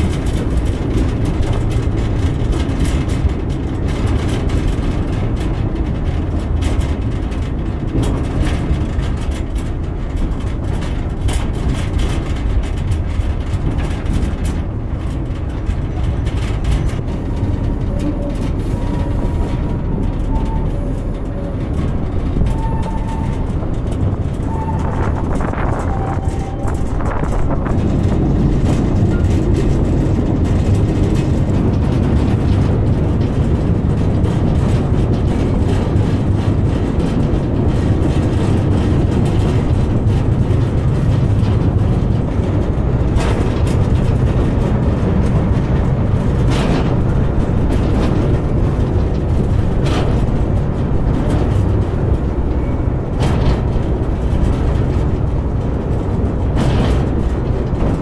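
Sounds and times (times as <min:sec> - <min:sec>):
sharp rail clacks: 0:00.0 - 0:58.0
train rumbling: 0:00.0 - 0:58.0.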